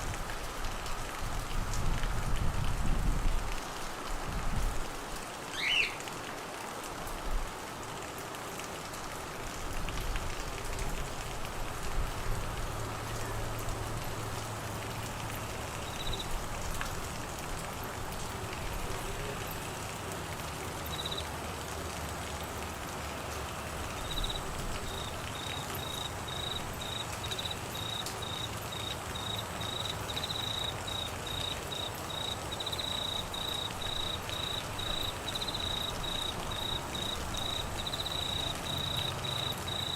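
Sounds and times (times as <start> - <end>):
steady rain: 0.0 - 39.9
cricket chirping: 20.9 - 21.2, 24.0 - 39.9.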